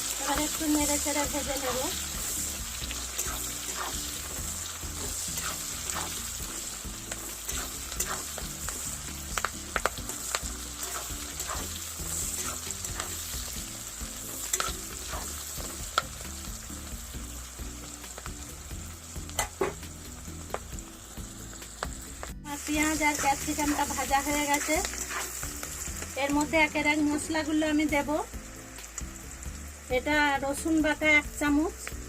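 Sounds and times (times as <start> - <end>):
vegetables sizzling in hot oil: 0.0 - 32.0
spatula scraping against pan: 3.1 - 4.4, 5.0 - 6.2, 7.5 - 8.5, 10.8 - 13.2, 23.1 - 25.4.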